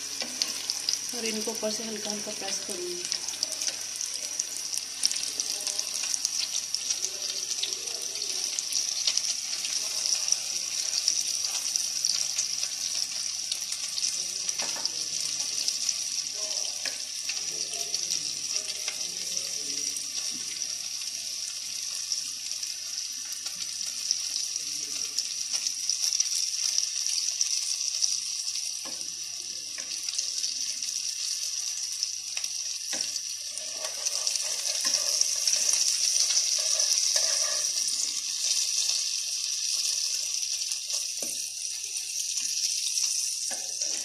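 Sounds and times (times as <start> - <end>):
bread sizzling in oil: 0.0 - 44.0.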